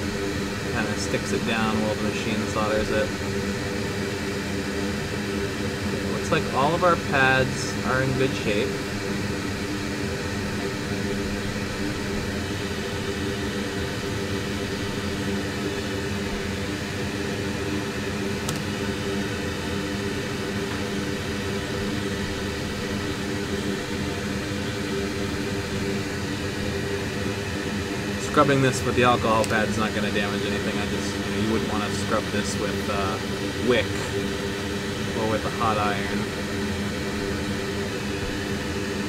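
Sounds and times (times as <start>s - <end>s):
electric fan humming: 0.0s - 39.0s.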